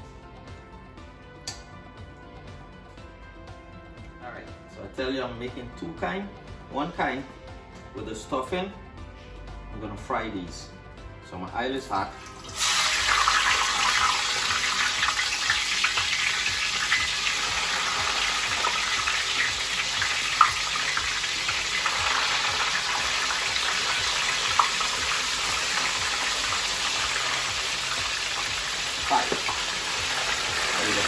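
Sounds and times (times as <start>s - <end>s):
vegetables sizzling in hot oil: 12.3s - 31.0s.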